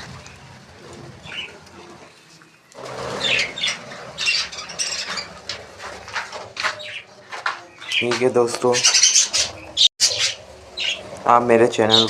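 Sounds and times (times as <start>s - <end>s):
budgerigars chirping and squawking: 1.2s - 1.6s, 3.1s - 5.6s, 6.6s - 7.1s, 7.8s - 12.0s.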